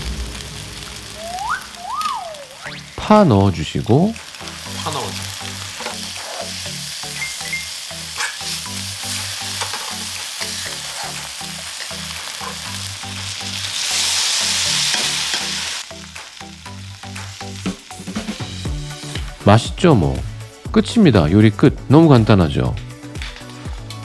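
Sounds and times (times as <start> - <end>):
food sizzling in a wok: 0.0 - 19.5, 22.8 - 24.0
spatula scraping a pan: 5.8 - 6.6, 8.1 - 11.2
background music with low beat: 15.9 - 24.0.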